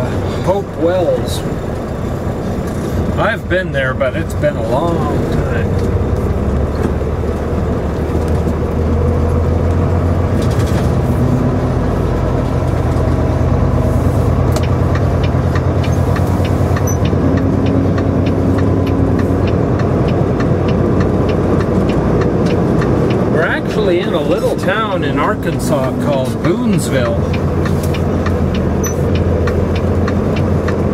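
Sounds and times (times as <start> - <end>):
diesel truck engine running: 0.0 - 30.9
light regular ticking: 11.6 - 30.9.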